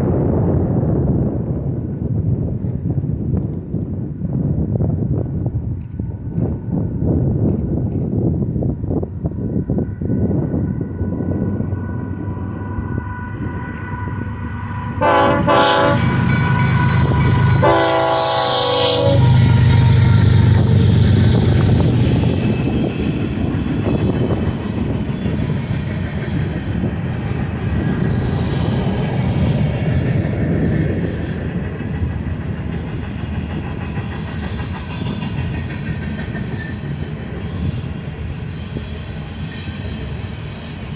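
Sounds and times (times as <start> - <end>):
diesel locomotive engines rumbling: 0.0 - 40.9
locomotive air horn blasts: 12.0 - 21.6.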